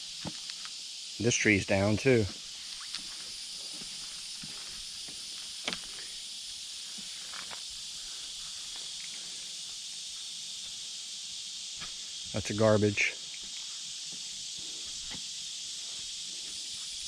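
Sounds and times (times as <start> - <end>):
insects droning: 0.0 - 17.0
faint footsteps on ground: 2.8 - 6.0.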